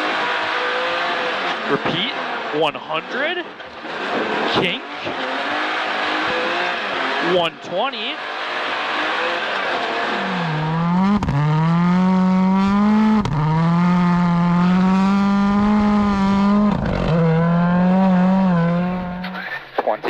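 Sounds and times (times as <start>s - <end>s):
rally car engine at full throttle: 0.0s - 20.0s
gear shift crack: 3.5s - 7.3s, 8.2s - 19.7s.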